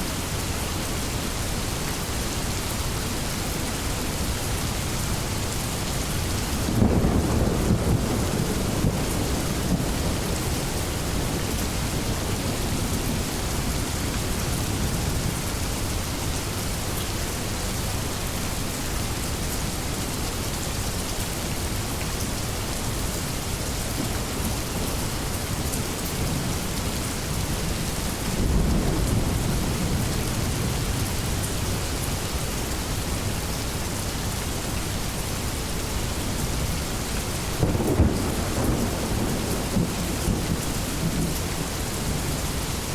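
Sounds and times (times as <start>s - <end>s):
steady rain: 0.0s - 42.9s
thunder rumbling: 37.6s - 41.7s.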